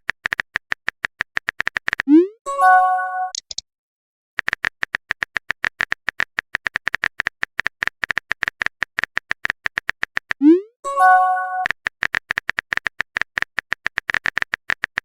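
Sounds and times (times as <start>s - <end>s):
phone keyboard typing clicks: 0.0s - 2.1s, 3.3s - 3.6s, 4.4s - 10.4s, 11.6s - 15.0s.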